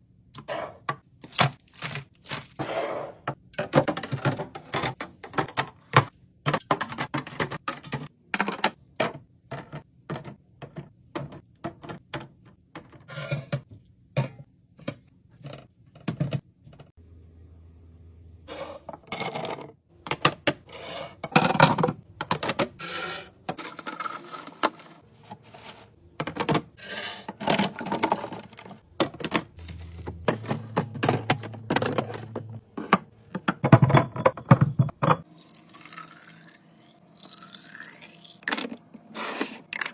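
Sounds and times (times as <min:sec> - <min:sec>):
containers tapping and clacking: 0:03.6 - 0:13.0.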